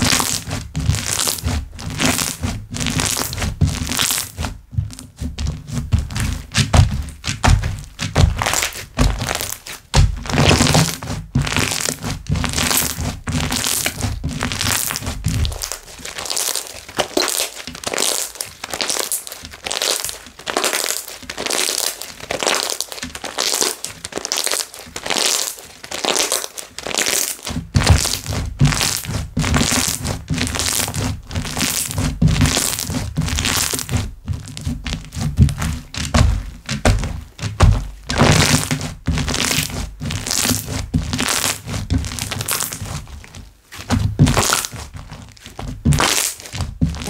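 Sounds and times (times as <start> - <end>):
hands squishing slime: 0.0 - 47.0
low thuds: 4.5 - 9.3.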